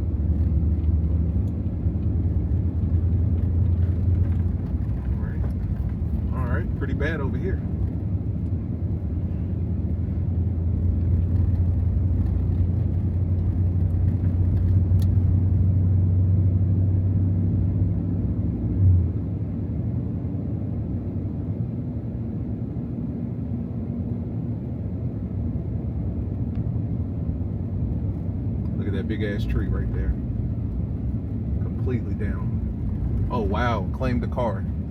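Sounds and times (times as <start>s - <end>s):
truck engine droning: 0.0s - 18.0s, 27.3s - 34.9s.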